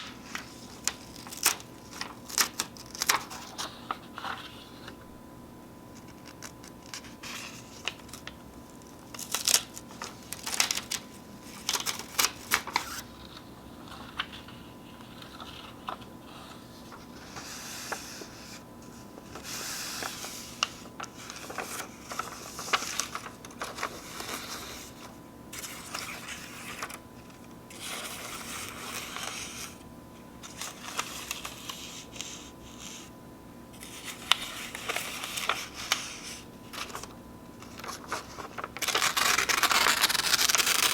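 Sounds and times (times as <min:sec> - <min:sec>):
paper crinkling: 0:00.0 - 0:05.0, 0:06.0 - 0:29.8, 0:33.8 - 0:40.9
paper tearing: 0:37.7 - 0:40.9.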